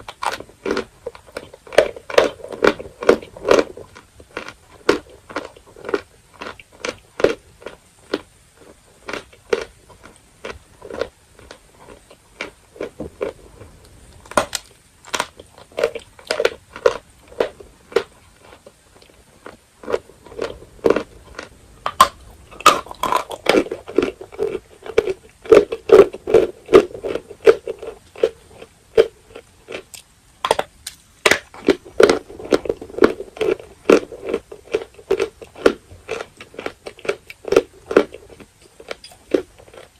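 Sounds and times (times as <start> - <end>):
chalk being chewed crunching: 0.0 - 39.9.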